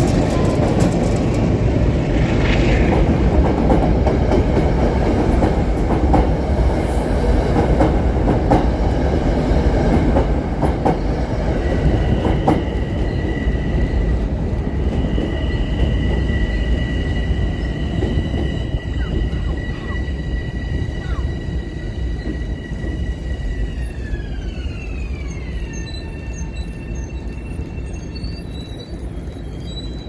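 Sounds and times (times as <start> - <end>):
train rumbling past: 0.0 - 30.0
wheels clicking over rail joints: 0.0 - 30.0
high-pitched squeal: 17.3 - 28.9.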